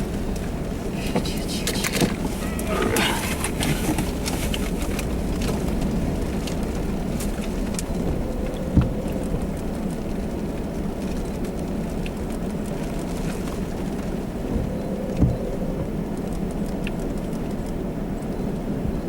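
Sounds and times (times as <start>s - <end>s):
vehicle cabin road rumble: 0.0s - 19.0s.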